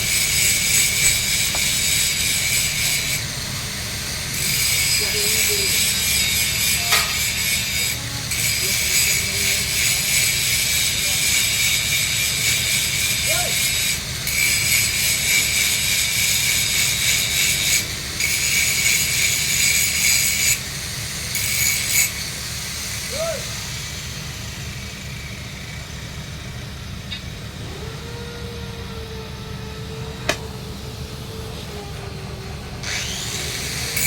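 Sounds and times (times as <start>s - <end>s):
welding arc crackling and hissing: 0.0s - 27.2s
steady low hum: 22.1s - 34.0s.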